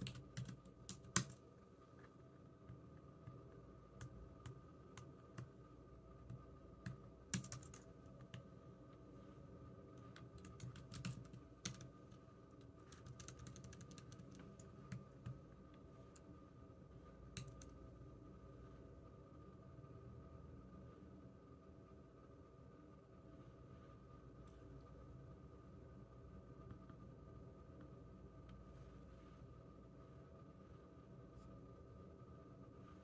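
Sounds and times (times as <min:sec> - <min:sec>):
keyboard typing: 0:00.0 - 0:01.4, 0:06.2 - 0:08.5, 0:10.1 - 0:15.4, 0:17.3 - 0:17.8
faint hum: 0:00.0 - 0:33.0.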